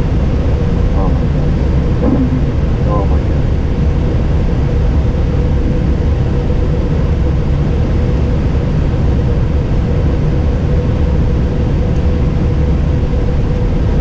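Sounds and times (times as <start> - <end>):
faint steady whine: 0.0 - 8.3
airliner low rumble: 0.0 - 14.0.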